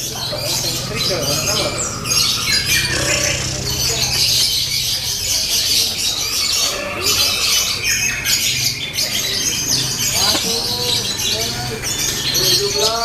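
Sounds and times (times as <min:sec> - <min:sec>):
lovebirds chattering: 0:00.0 - 0:13.0.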